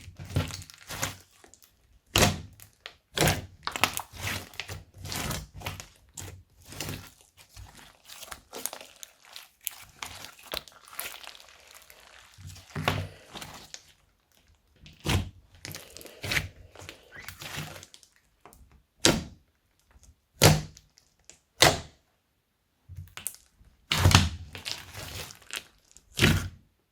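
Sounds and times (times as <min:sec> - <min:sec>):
slime popping and crackling: 0:00.1 - 0:18.2, 0:23.1 - 0:26.5.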